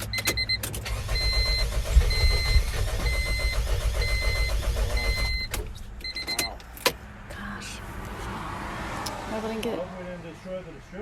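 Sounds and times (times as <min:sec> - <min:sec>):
engine cranking without starting: 0:00.0 - 0:06.5
dashboard warning chime beeping: 0:00.0 - 0:06.7.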